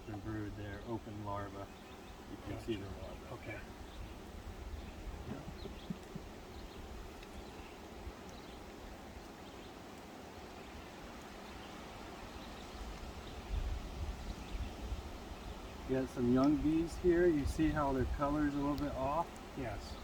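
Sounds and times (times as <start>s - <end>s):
honey bees humming: 0.0s - 20.0s
wind rumble on microphone: 3.8s - 7.5s, 12.7s - 20.0s.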